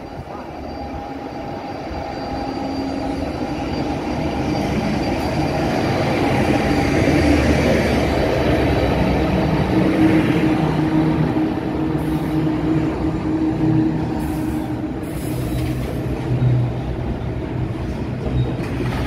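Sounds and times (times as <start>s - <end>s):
diesel locomotive engine: 0.0s - 19.0s
freight train passing: 0.0s - 19.0s.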